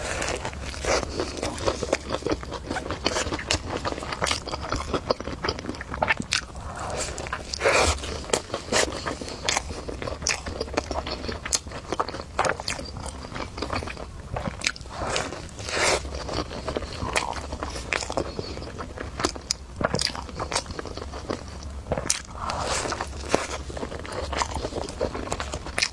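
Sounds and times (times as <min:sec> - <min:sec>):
person chewing a burger: 0:00.0 - 0:25.9
mouth clicks and smacks: 0:05.5 - 0:08.9.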